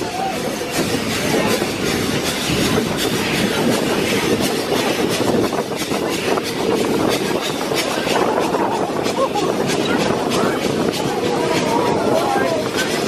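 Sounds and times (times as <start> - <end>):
train wheels rattling on track: 0.0 - 13.0.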